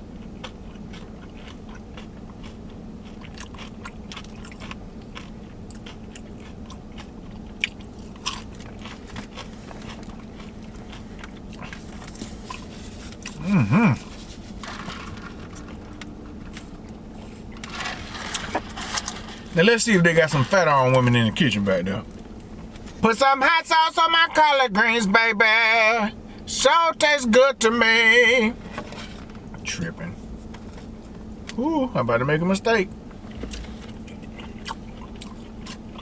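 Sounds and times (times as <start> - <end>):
chewing crunchy fried fish: 0.0 - 19.6, 33.2 - 36.0
steady low hum: 0.0 - 36.0
person humming: 13.4 - 14.1.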